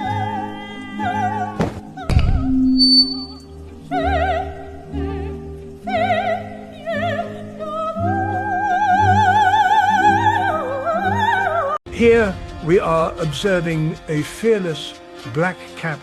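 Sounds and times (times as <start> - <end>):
operatic singing high voice: 0.0 - 16.0
orchestral accompaniment: 11.9 - 16.0.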